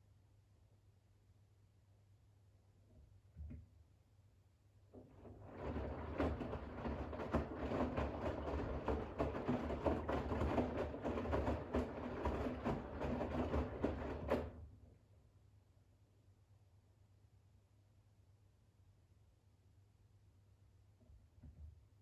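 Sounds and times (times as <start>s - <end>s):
washing machine drum sloshing: 5.1s - 14.6s.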